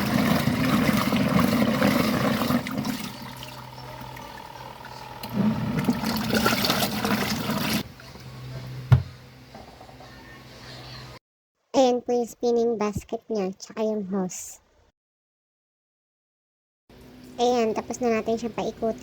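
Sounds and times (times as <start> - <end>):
washing machine sloshing water: 0.0 - 8.1
motor humming: 0.0 - 9.2
thump: 8.9 - 9.2.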